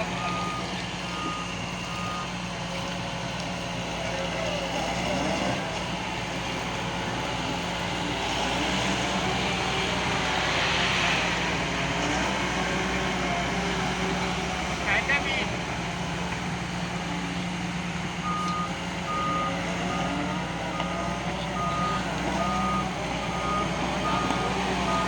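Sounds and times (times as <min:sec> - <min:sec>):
travel alarm beeping: 0:00.0 - 0:02.4, 0:18.2 - 0:25.0
excavator diesel engine running: 0:00.0 - 0:25.0.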